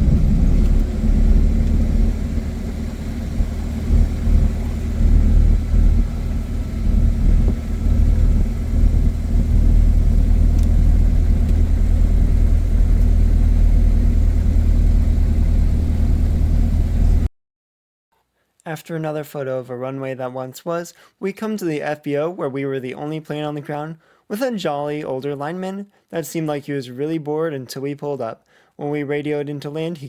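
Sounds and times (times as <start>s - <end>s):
propeller plane engine droning: 0.0s - 17.3s.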